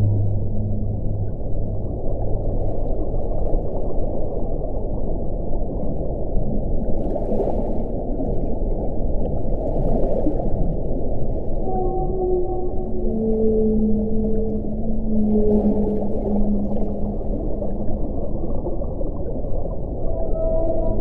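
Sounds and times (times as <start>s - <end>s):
wind blowing: 0.0s - 2.7s.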